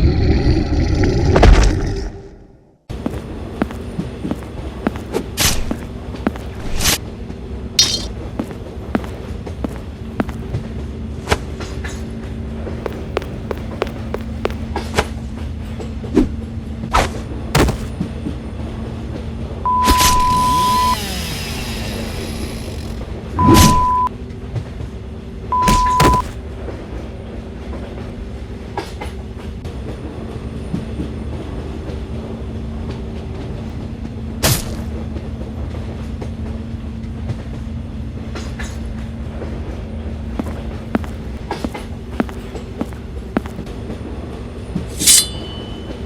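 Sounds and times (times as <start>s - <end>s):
mechanical rumble with low hum: 3.0s - 24.1s
short high beeps: 7.8s - 8.1s, 19.7s - 21.0s, 23.4s - 24.1s, 25.6s - 26.3s.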